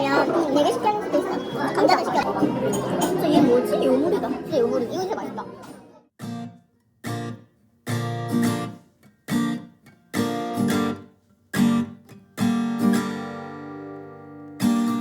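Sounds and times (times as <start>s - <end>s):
acoustic guitar strumming chords: 6.2s - 15.0s.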